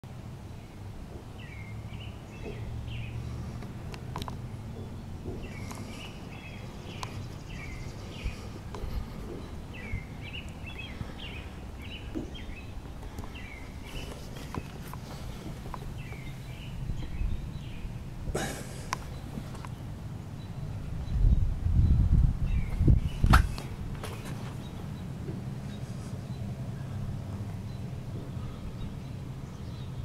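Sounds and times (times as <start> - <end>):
low outdoor rumble: 0.0 - 30.0
songbird chirping: 0.3 - 30.0
faint clicks: 7.0 - 7.2.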